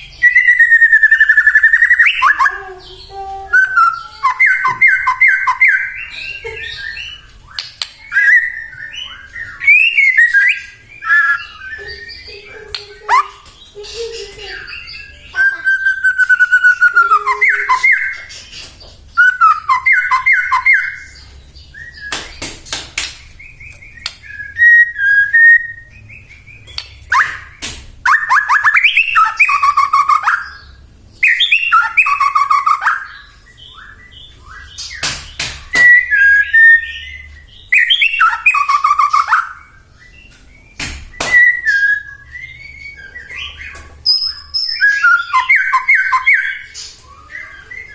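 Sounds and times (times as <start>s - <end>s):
bird singing whistled phrases: 0.0s - 18.3s, 19.1s - 22.2s, 23.4s - 47.9s
sharp bird clicking notes: 7.5s - 8.5s, 22.1s - 24.5s.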